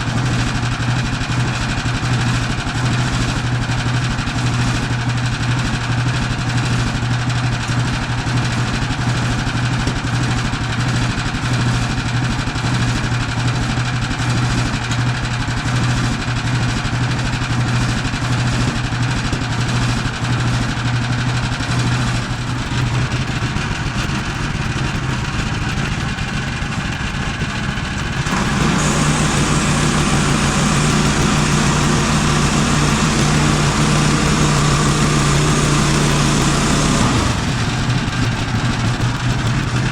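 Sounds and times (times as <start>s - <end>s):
gas engine running: 18.1s - 39.9s.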